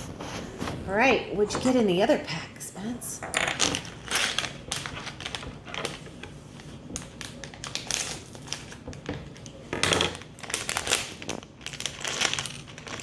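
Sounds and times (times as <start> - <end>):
plastic bag crinkling: 3.4 - 13.0.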